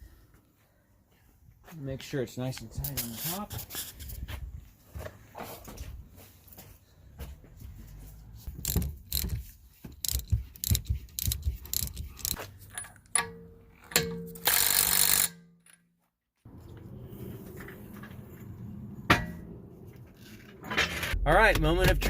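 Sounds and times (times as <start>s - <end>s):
ratchet wrench clicking: 8.6s - 12.4s, 14.4s - 15.4s.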